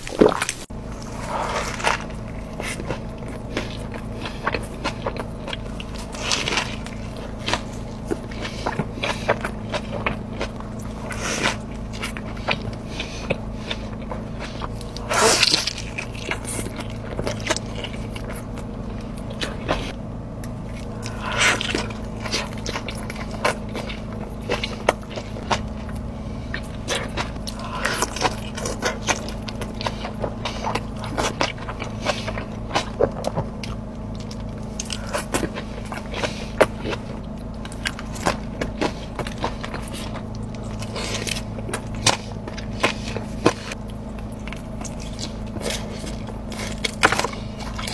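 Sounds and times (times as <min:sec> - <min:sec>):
person chewing food: 0:00.0 - 0:47.9
steady low hum: 0:00.0 - 0:47.9.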